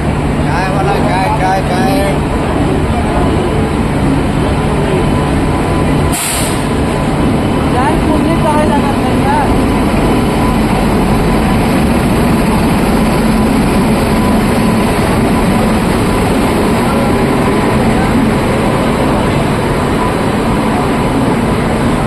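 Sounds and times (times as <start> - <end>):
passenger train running: 0.0 - 22.0.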